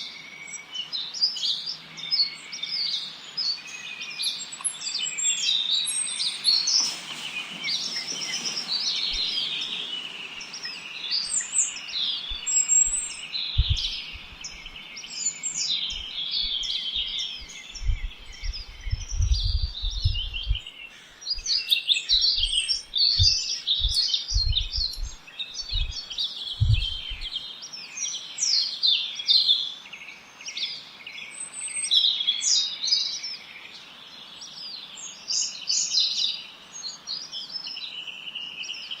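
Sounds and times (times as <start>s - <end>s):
chorus of small birds chirping: 0.0s - 39.0s
low rumbles: 13.6s - 14.8s, 17.4s - 20.7s, 23.2s - 26.0s, 26.6s - 27.4s.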